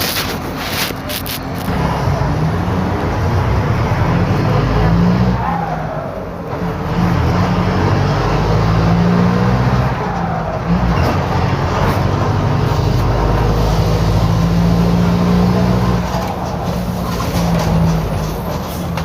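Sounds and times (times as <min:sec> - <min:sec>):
bus diesel engine with holed exhaust: 0:00.0 - 0:19.0.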